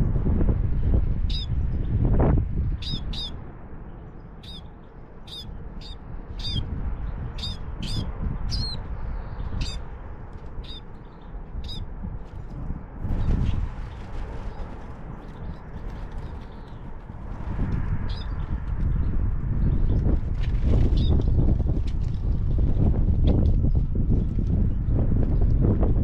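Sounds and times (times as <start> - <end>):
songbird high calls: 2.8 - 3.4, 4.4 - 4.7, 5.3 - 6.6, 9.6 - 9.8, 11.6 - 11.8.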